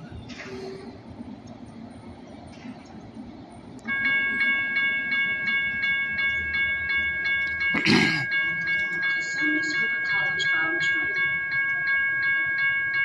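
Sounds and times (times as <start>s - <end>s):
low rumble of light rail: 0.0s - 13.0s
rail warning bell ringing: 3.8s - 13.0s.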